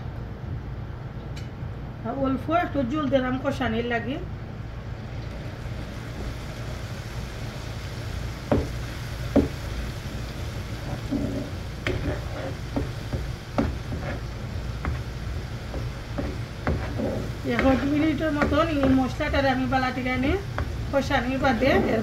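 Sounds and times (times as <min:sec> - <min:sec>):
steady low hum: 0:00.0 - 0:22.0
masala sizzling and bubbling: 0:02.8 - 0:22.0
spatula knocking on pan: 0:08.5 - 0:09.6, 0:11.0 - 0:19.5, 0:20.4 - 0:20.8
spatula stirring and scraping: 0:10.8 - 0:20.8.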